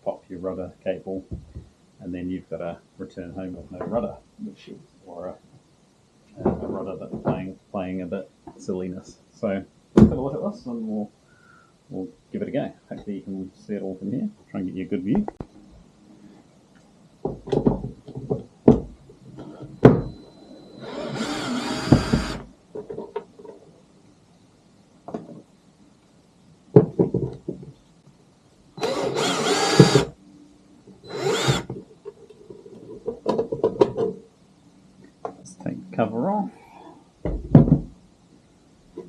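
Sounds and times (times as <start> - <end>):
cordless drill whirring: 20.8 - 22.5, 28.8 - 30.1, 31.0 - 31.7.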